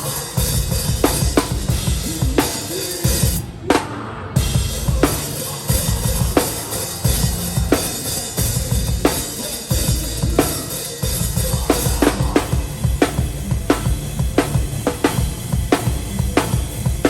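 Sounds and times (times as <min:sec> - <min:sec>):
metal band playing live: 0:00.0 - 0:17.0
busy bass drum: 0:04.4 - 0:17.0.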